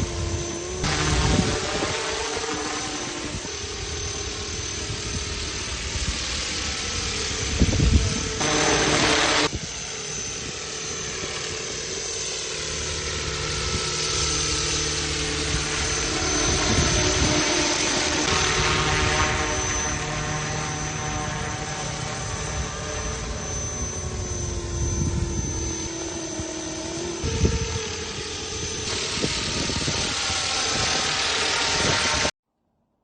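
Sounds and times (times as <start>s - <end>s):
model helicopter whine: 0.0s - 32.4s
loud rushing noise: 0.8s - 3.6s, 8.4s - 9.6s.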